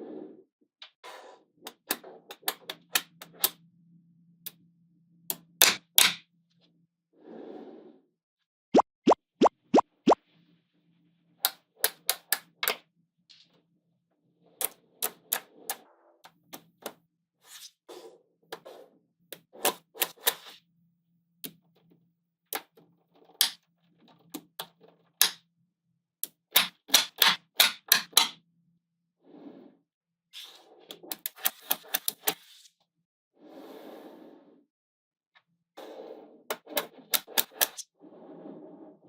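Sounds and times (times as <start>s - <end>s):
magnetic balls snapping together: 37.1s - 37.8s.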